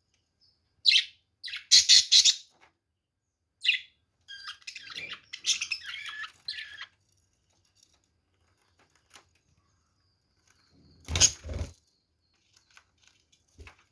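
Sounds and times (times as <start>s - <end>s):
budgerigar chattering and chirping: 0.9s - 2.5s, 3.6s - 6.9s.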